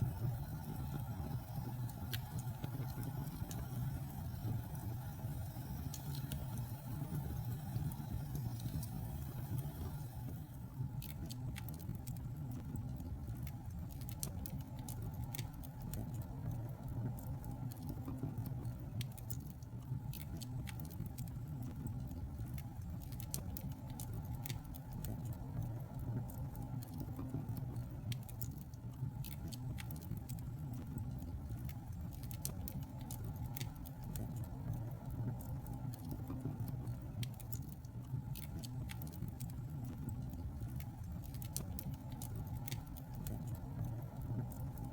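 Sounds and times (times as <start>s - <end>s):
fire crackling and popping: 0.0s - 44.9s.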